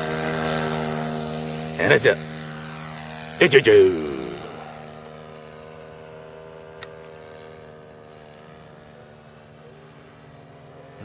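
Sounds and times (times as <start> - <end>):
model airplane engine droning: 0.0 - 11.0.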